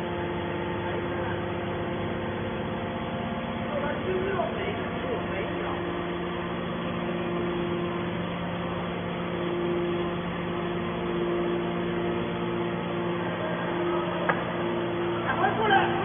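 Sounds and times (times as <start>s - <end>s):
hydraulic pump motor humming: 0.0s - 16.0s.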